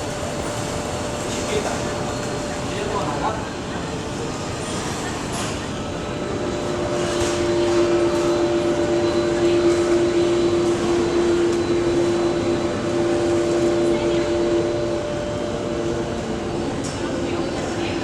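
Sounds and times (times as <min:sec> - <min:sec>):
steady engine hums: 0:00.0 - 0:18.0.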